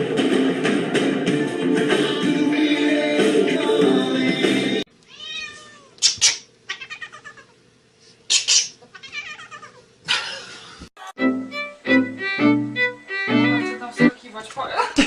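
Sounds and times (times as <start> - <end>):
cat meowing: 5.1 - 6.0, 6.7 - 7.6, 8.9 - 9.8.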